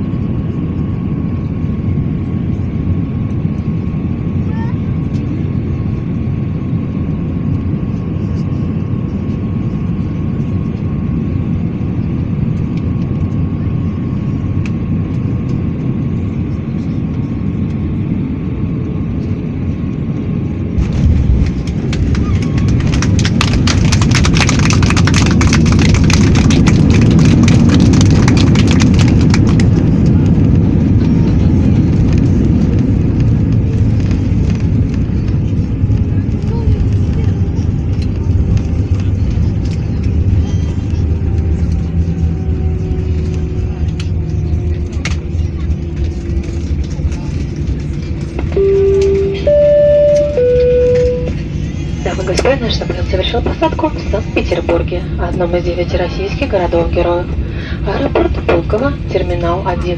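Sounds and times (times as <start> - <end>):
airliner engine drone in cabin: 0.0 - 59.9
engines roaring with rattling: 0.0 - 59.9
touchdown jolt and rumble: 20.7 - 48.4.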